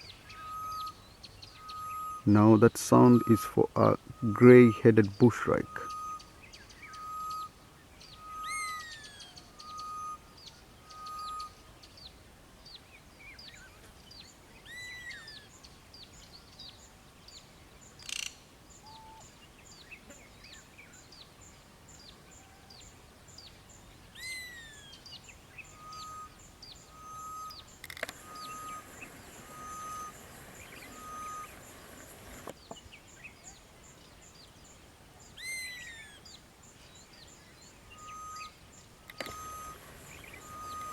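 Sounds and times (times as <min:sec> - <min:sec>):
small birds chirping: 0:00.0 - 0:40.9
bird call slurring down: 0:26.9 - 0:32.5, 0:39.1 - 0:40.9.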